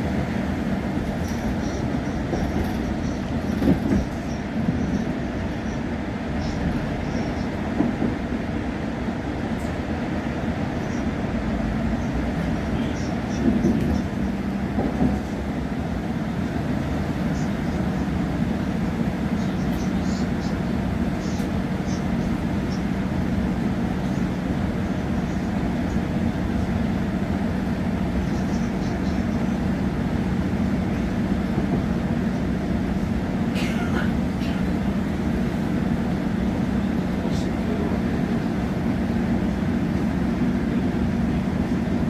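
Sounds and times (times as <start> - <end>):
train running noise inside carriage: 0.0 - 42.0.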